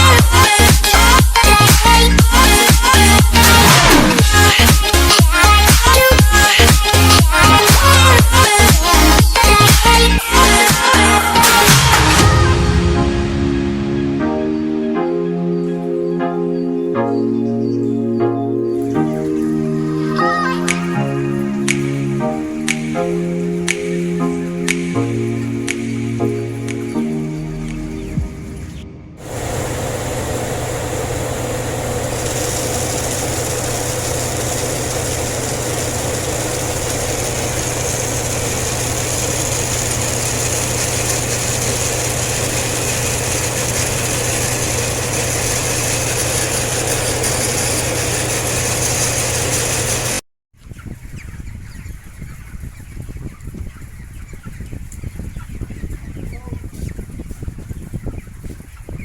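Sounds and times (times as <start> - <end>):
exhaust fans humming: 0.0 - 12.4, 18.9 - 50.2
chickens clucking: 17.2 - 59.0.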